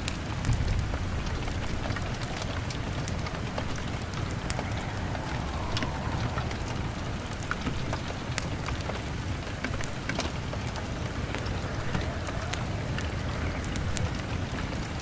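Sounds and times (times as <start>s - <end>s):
rain against a window: 0.0s - 15.0s
wood fire crackling: 0.0s - 15.0s
low rumble: 0.5s - 15.0s.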